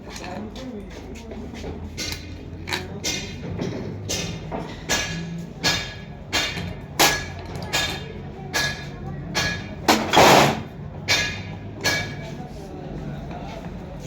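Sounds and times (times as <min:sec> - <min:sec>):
hammer striking metal: 0:02.0 - 0:12.4.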